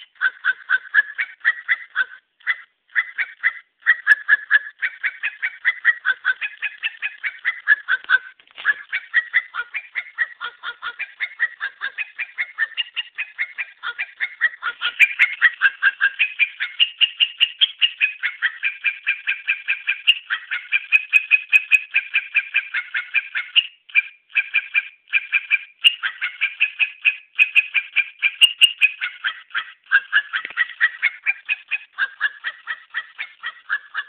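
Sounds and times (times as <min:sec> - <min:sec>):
dog yelping in a tune: 0:00.0 - 0:16.8, 0:29.0 - 0:34.0.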